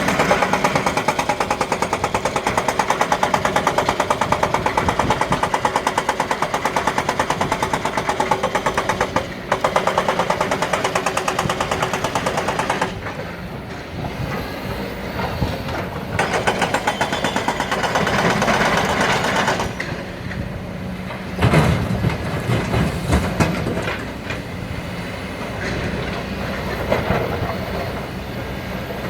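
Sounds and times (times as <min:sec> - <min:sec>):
heavy machinery engine: 0:00.0 - 0:29.0
loud knocks and clatters: 0:21.1 - 0:24.1.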